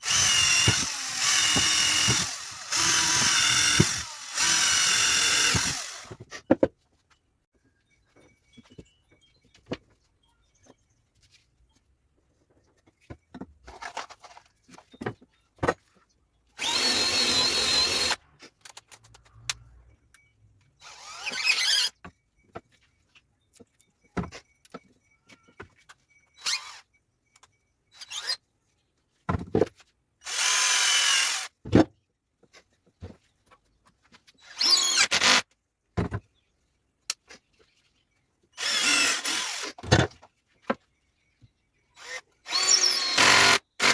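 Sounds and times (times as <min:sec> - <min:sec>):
power drill running: 0:00.0 - 0:06.2, 0:16.6 - 0:18.2, 0:20.8 - 0:21.9, 0:30.3 - 0:31.5, 0:34.6 - 0:35.4, 0:38.6 - 0:39.8, 0:42.0 - 0:43.9.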